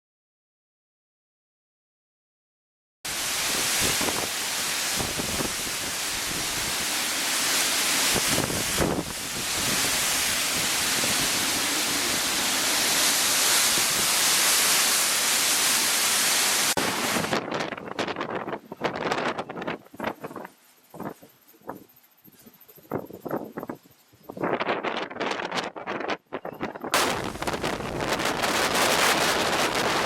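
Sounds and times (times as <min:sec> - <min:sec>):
heavy rain pouring: 0:03.1 - 0:17.4, 0:27.0 - 0:30.0.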